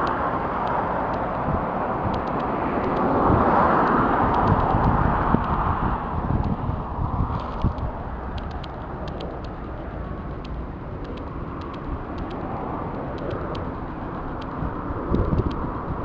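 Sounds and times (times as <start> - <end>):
distant traffic rumble: 0.0 - 16.0
wind on microphone: 0.0 - 16.0
faint high-pitched ticks: 2.1 - 3.1, 7.2 - 16.0.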